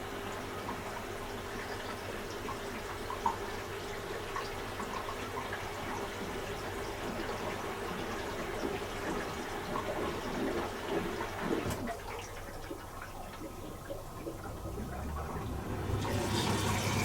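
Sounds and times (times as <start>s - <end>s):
pump humming: 0.0s - 17.0s
water spraying inside dishwasher: 13.5s - 17.0s.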